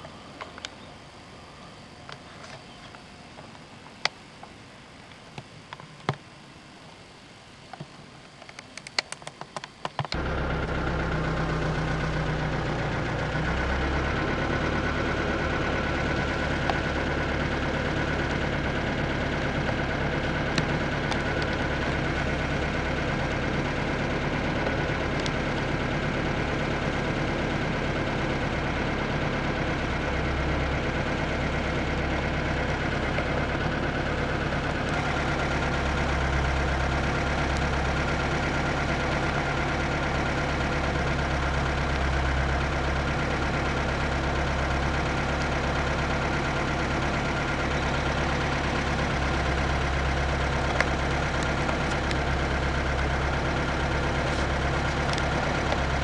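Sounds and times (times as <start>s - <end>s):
faint high whine: 0.0s - 13.2s
mechanical hum: 0.0s - 56.0s.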